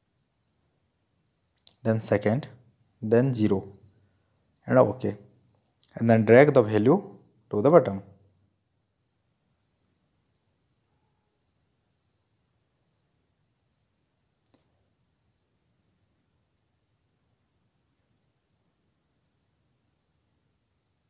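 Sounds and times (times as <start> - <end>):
faint high-pitched whine: 0.0 - 21.0
click: 14.4 - 14.7.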